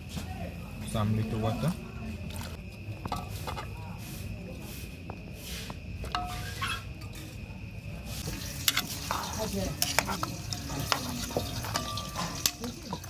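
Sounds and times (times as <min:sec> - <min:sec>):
food sizzling in a pot: 0:08.0 - 0:13.0
spoon knocking against a pot: 0:09.9 - 0:13.0.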